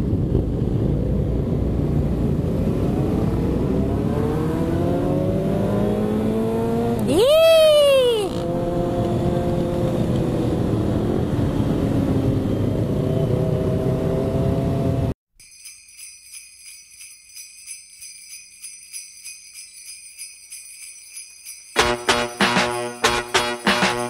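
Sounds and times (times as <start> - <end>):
wind noise on microphone: 0.0 - 3.7
sleigh bells jingling: 15.4 - 24.0.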